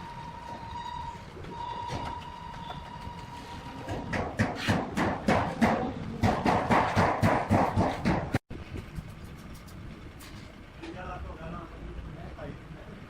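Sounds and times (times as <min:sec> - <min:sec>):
fast sharp knocks: 0:03.9 - 0:08.4.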